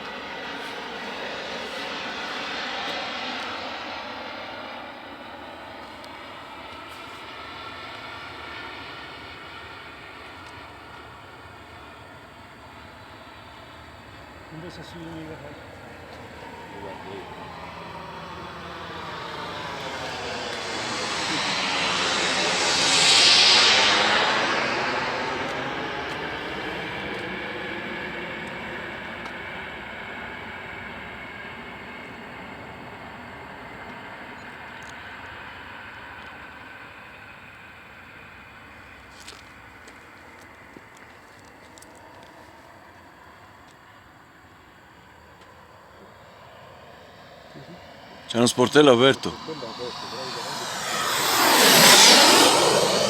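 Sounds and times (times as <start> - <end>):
model jet turbines running: 0.0 - 53.0
model jet turbines hissing: 11.4 - 27.0, 45.6 - 53.0.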